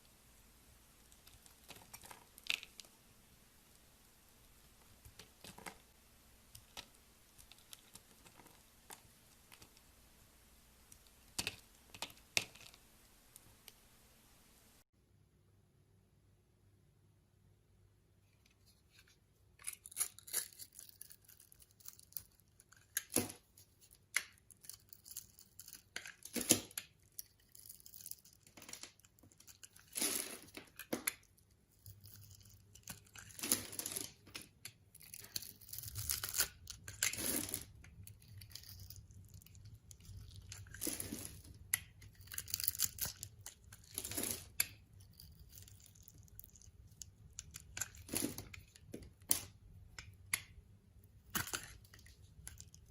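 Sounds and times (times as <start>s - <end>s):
knife scraping soap: 18.6s - 49.3s.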